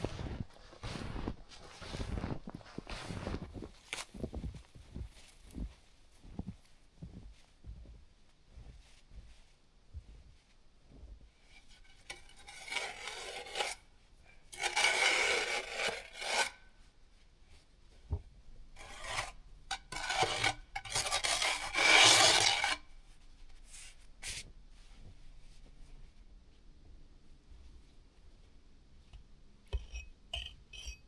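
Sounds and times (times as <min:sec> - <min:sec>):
snowshoe steps crunching in snow: 0:00.0 - 0:09.3.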